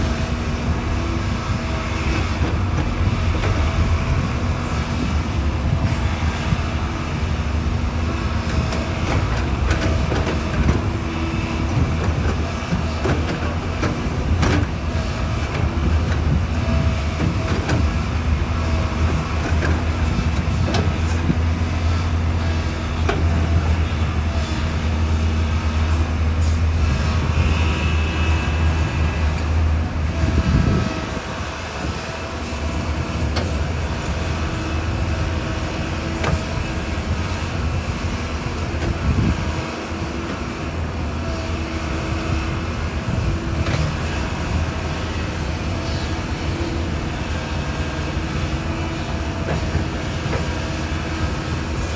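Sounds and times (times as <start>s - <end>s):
excavator diesel engine drone: 0.0s - 51.9s.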